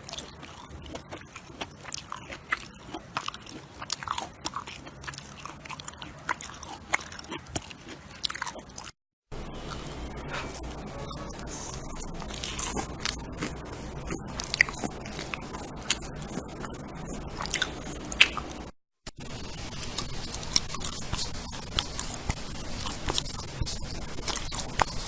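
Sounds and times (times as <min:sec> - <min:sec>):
person chewing and biting: 0:00.0 - 0:25.0.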